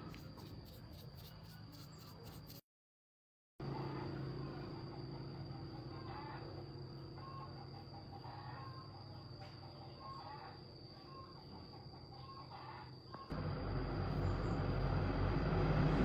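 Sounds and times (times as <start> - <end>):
low steady hum: 13.3 - 16.0.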